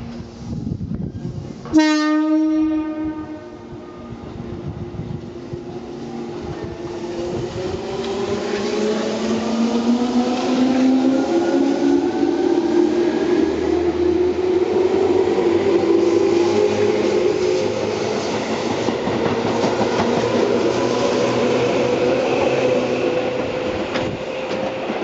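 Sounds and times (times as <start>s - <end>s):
train horn: 1.7s - 4.2s.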